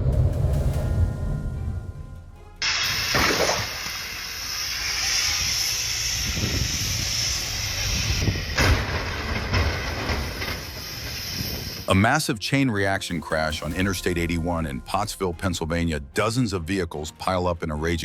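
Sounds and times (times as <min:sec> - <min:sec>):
low rumble: 0:00.0 - 0:03.2, 0:13.1 - 0:16.2
steady rushing hiss: 0:02.6 - 0:11.9.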